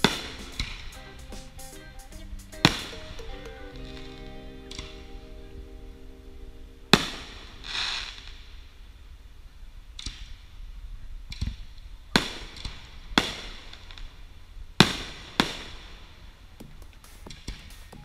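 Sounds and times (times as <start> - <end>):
fireworks booming: 0.0 - 1.6
fizzing crackle of fireworks: 0.0 - 3.2, 12.2 - 18.0.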